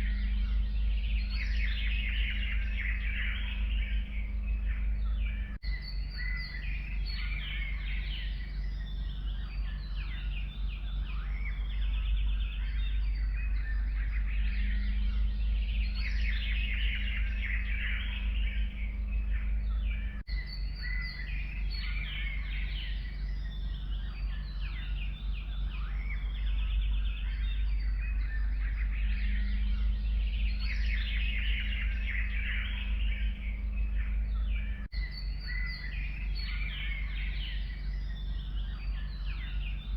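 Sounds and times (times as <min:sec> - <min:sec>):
forest birds chirping and trilling: 0:00.0 - 0:39.9
steady low hum: 0:00.0 - 0:39.9.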